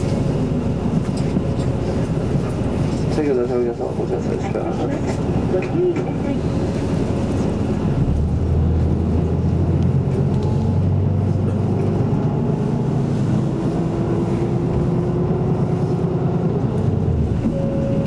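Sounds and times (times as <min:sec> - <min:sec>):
bus diesel engine: 0:00.0 - 0:18.0.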